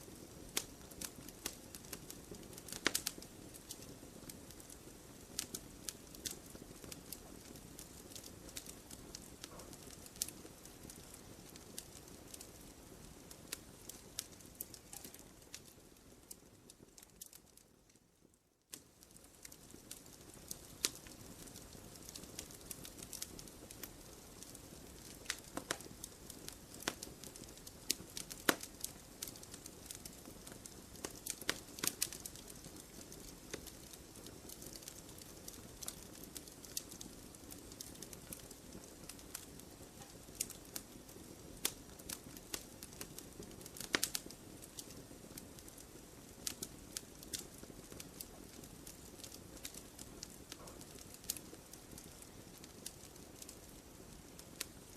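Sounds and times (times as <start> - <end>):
wood fire crackling and popping: 0.0 - 54.9.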